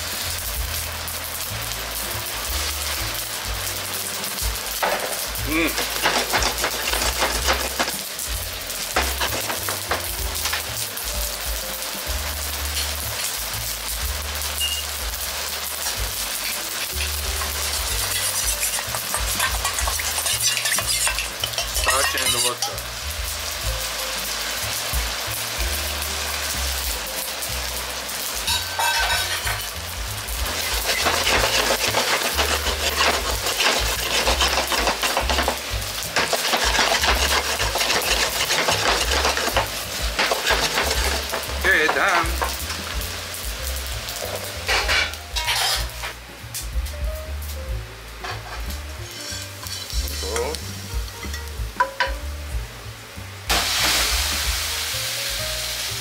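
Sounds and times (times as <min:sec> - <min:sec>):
slurry being poured: 0:00.0 - 0:14.8, 0:15.8 - 0:24.7, 0:25.4 - 0:46.0
stir-fry sizzling in a wok: 0:00.0 - 0:56.0.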